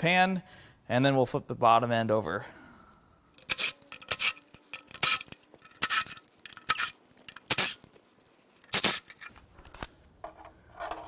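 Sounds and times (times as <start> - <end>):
metal hand tools clinking: 3.4 - 7.9.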